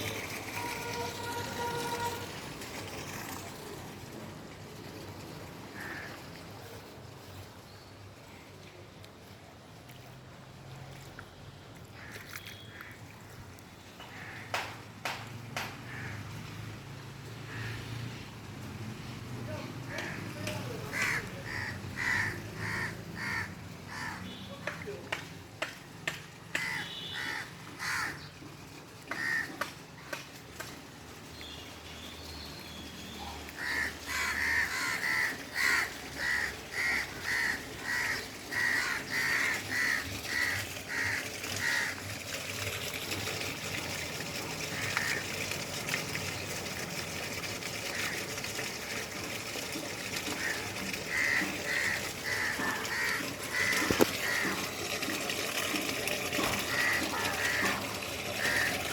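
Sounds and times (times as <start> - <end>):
water rushing through drain: 0.0 - 58.9
bird cawing: 5.8 - 6.2, 12.0 - 13.1, 14.0 - 14.8, 15.9 - 16.3, 20.9 - 24.4, 26.5 - 28.3, 29.1 - 30.2, 33.6 - 42.0, 50.3 - 54.8, 56.4 - 58.9.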